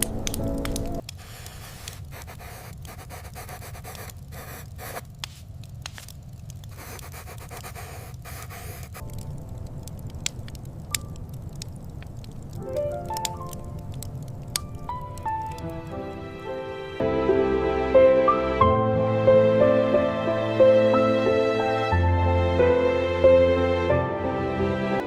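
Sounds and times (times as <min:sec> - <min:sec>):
sharp clicks: 0:00.0 - 0:15.8
crackling scraping hiss: 0:00.0 - 0:17.1
low wind rumble: 0:05.0 - 0:25.0.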